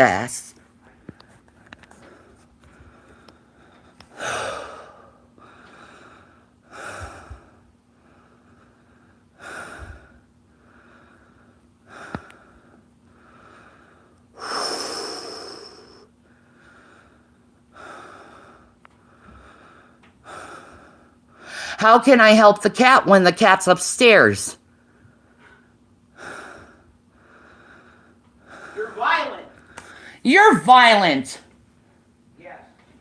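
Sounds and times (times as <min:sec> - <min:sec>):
person breathing heavily: 0:02.0 - 0:21.8, 0:26.2 - 0:30.2.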